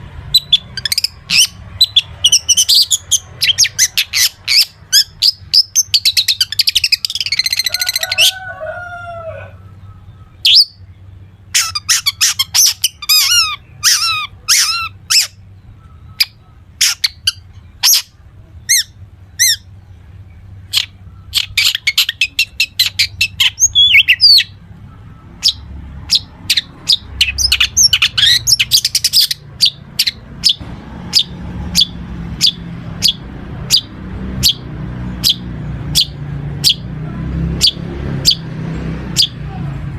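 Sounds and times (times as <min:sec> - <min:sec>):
shrike singing: 0:00.0 - 0:39.9.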